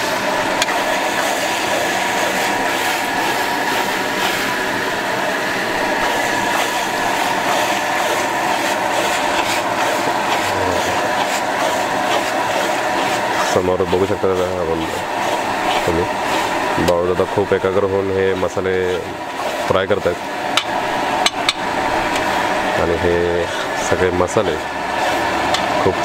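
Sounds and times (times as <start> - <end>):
food sizzling in oil: 0.0 - 26.0
gas burner noise: 0.0 - 26.0
metal spatula scraping a pan: 6.0 - 20.2.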